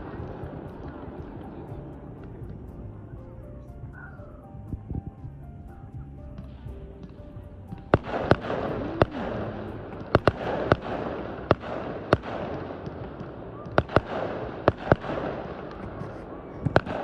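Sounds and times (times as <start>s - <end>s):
fireworks rumble and crackle: 0.0s - 17.0s
firework shell bursts: 7.8s - 15.9s.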